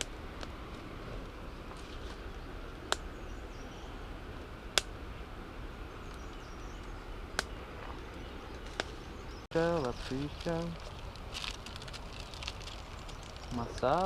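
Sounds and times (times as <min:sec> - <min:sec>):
campfire crackling: 0:00.0 - 0:14.0
sharp fire pops: 0:04.7 - 0:05.0.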